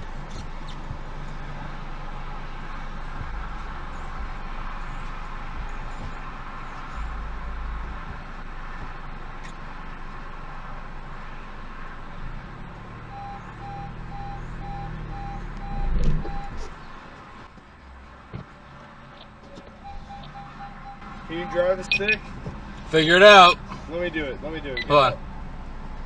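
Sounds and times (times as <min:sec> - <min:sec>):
vehicle driving: 0:00.0 - 0:26.0
electronic warning beep: 0:13.1 - 0:16.6, 0:19.8 - 0:22.3.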